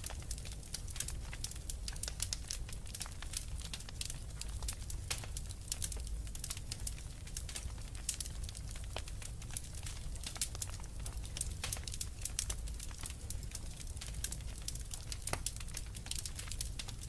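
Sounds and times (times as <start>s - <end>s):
fire crackling and popping: 0.0s - 17.0s
low rumble of fire: 0.0s - 17.0s.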